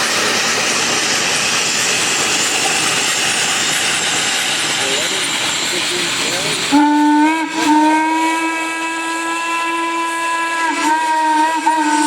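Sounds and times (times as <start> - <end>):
steam locomotive whistle: 6.6 - 12.0.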